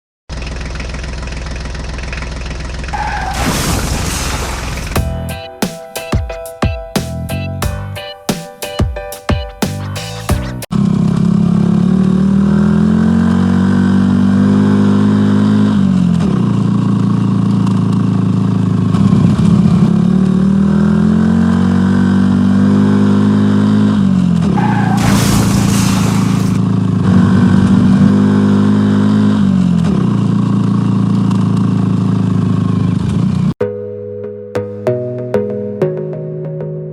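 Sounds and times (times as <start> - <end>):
hissing burst: 3.1 - 5.0, 24.8 - 26.6
vehicle engine revving: 10.7 - 33.5.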